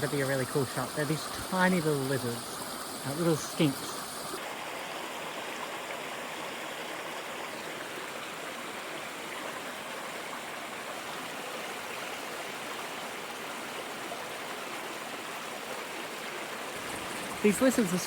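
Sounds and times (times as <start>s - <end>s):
river water flowing: 0.0s - 18.0s.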